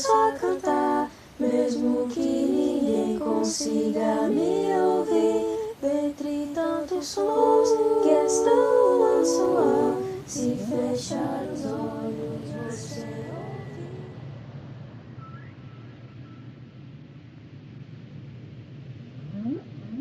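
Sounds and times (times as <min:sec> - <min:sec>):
female a cappella singing: 0:00.0 - 0:14.2.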